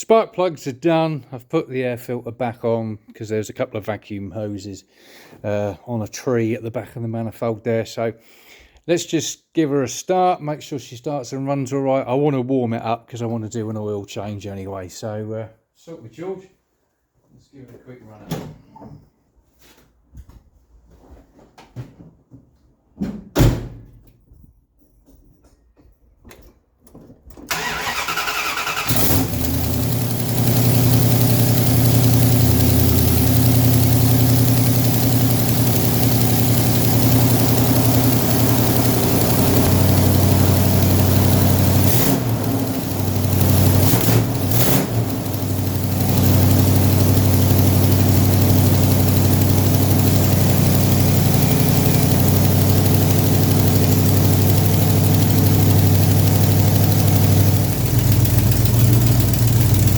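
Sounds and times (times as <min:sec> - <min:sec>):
thump: 0:23.0 - 0:24.0
engine cranking and starting: 0:27.5 - 0:59.9
engine running with exhaust leak: 0:27.5 - 0:59.9.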